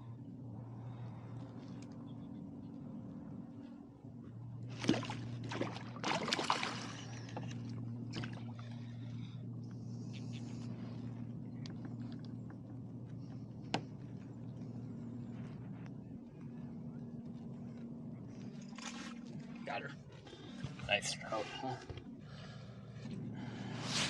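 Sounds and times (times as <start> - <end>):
steady low hum: 0.0 - 24.0
fish splashing in water: 4.8 - 7.2.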